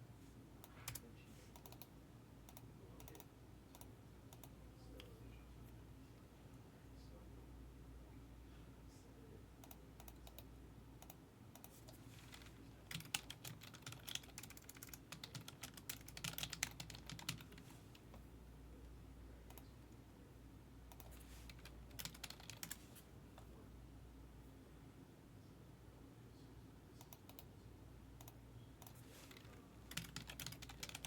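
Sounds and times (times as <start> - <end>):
faint keyboard typing: 0.6 - 5.8, 9.6 - 18.3, 19.4 - 20.0, 20.9 - 23.6, 27.0 - 27.6, 28.2 - 31.0.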